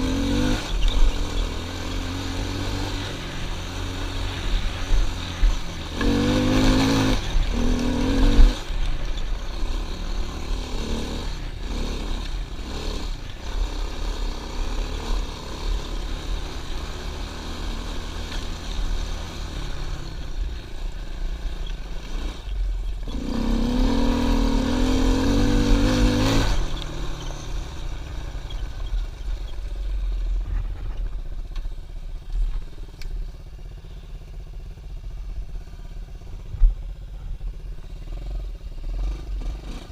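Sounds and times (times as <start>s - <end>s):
pit bike engine revving: 0.0s - 29.7s, 36.1s - 39.9s.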